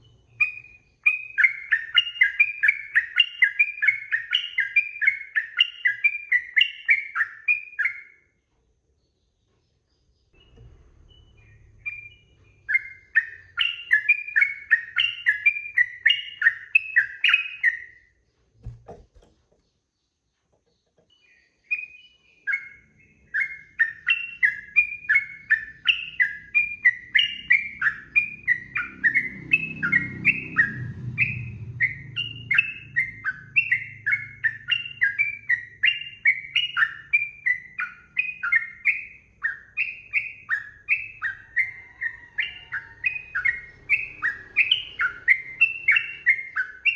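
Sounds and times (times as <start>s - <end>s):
bird singing whistled phrases: 0.0s - 8.2s, 10.4s - 18.0s, 21.2s - 46.9s
faint low hum: 8.4s - 17.1s
soft knock: 18.6s - 19.6s.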